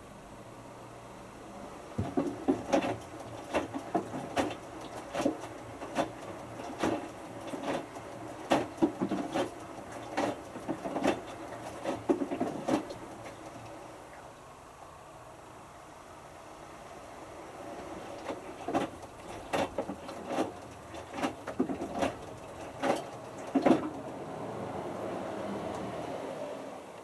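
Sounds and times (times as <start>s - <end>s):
washing machine drum tumbling: 1.0s - 13.5s, 17.0s - 24.1s.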